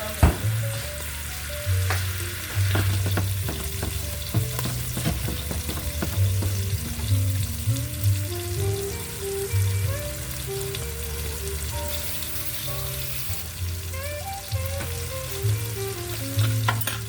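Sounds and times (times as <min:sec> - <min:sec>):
garlic sizzling in a pan: 0:00.0 - 0:17.0
utensil clicking against pan: 0:01.9 - 0:07.5.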